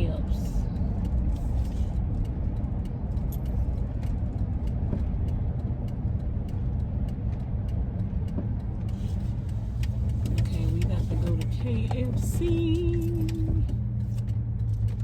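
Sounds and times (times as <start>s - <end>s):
van engine and road rumble: 0.0s - 15.0s.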